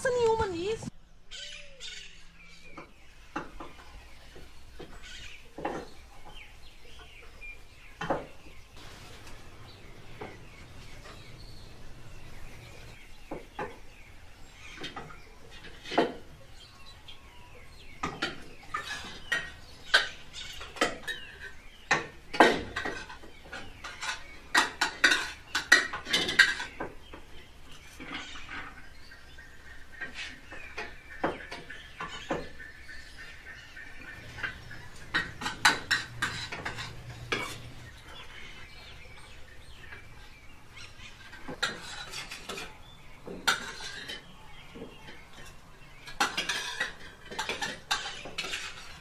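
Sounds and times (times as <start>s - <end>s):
cutlery clinking on plates: 18.0s - 27.0s, 34.2s - 37.9s, 41.2s - 49.0s.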